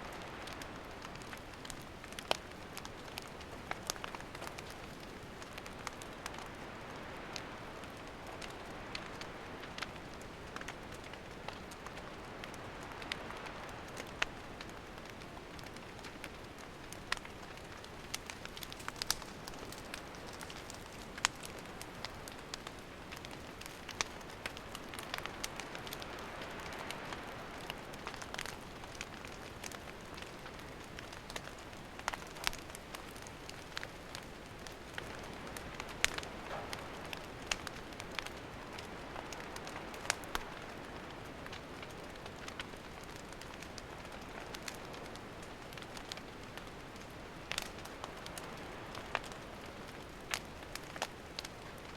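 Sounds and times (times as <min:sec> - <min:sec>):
campfire hiss: 0:00.0 - 0:51.9
fire crackles and pops: 0:00.0 - 0:51.9.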